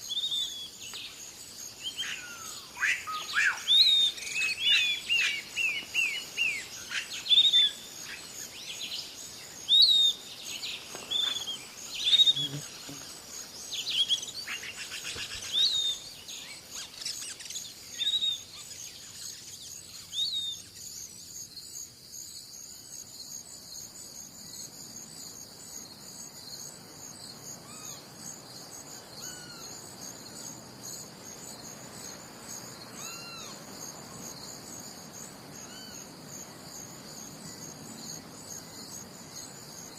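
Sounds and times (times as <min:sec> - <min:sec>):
crickets chirping: 0:00.0 - 0:39.9
songbirds chirping: 0:00.1 - 0:21.4.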